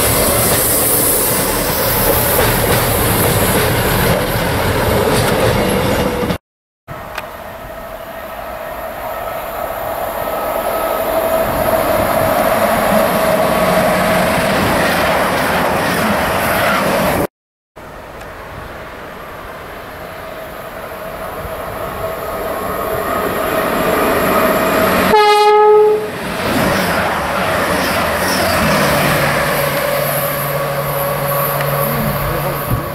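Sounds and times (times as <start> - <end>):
train rumble: 0.0 - 32.9
train horn blast: 25.0 - 26.2.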